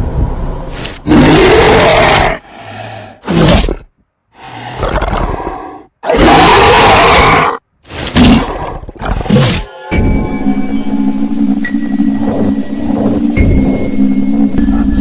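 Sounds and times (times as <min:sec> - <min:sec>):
monster growling roars: 0:01.0 - 0:03.8, 0:04.4 - 0:07.6.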